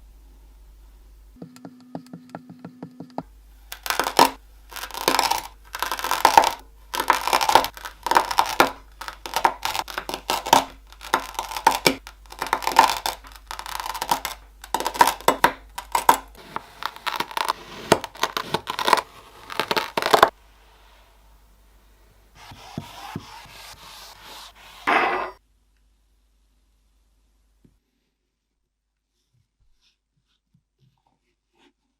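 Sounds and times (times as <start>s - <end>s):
kinetic sand worked by hand: 3.7s - 21.2s, 22.3s - 24.9s.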